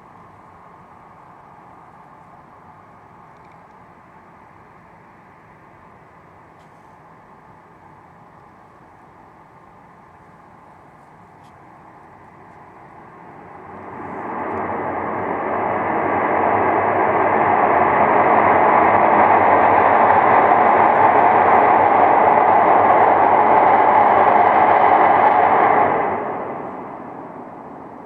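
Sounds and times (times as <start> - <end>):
loud rushing roar: 13.0 - 28.0.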